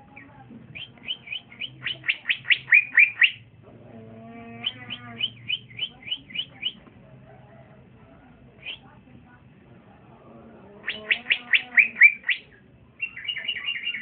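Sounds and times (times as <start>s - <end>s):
bird whistling song: 0.2s - 3.4s, 4.6s - 6.8s, 8.6s - 8.9s, 10.8s - 14.0s.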